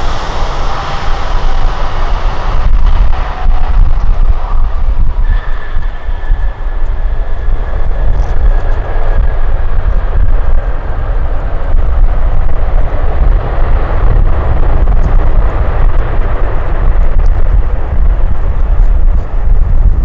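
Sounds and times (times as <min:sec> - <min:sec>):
thin high whine: 0:00.0 - 0:14.0
jet engine noise: 0:00.0 - 0:20.0
wind rumble on microphone: 0:00.0 - 0:20.0.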